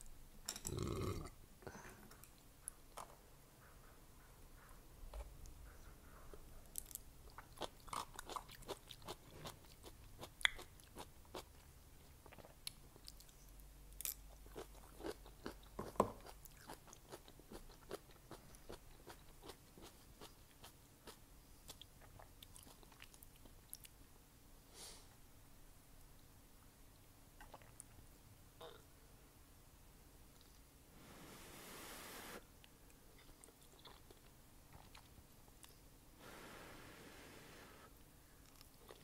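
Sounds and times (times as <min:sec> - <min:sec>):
chewing noodles: 0:06.7 - 0:13.4, 0:33.1 - 0:35.8, 0:38.4 - 0:39.0
wet mouth clicks and crunches: 0:10.2 - 0:10.7.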